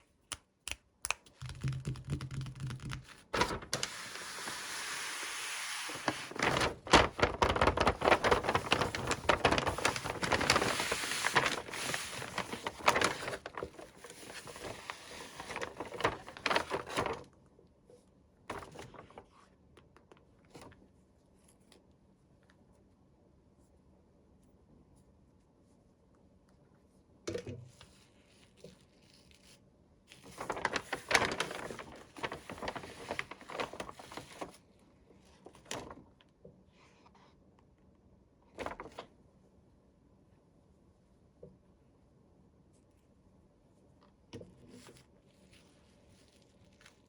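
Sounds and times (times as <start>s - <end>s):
small clicks and taps: 0.3s - 3.1s
toy packaging rustling: 5.9s - 17.2s.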